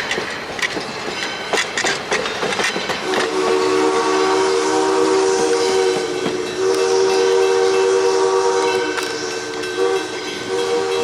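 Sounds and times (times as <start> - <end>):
steam locomotive whistle: 3.0 - 11.0.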